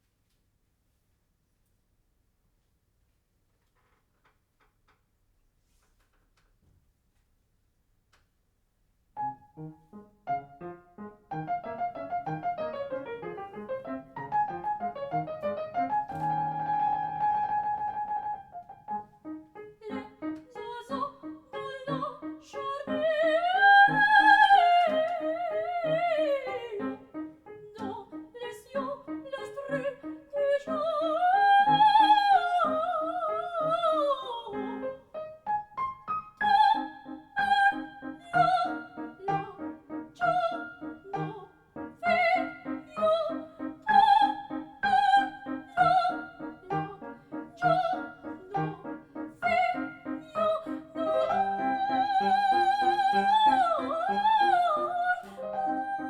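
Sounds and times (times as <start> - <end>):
piano accompaniment: 9.2 - 56.0
soprano singing opera: 19.6 - 35.3, 36.3 - 56.0.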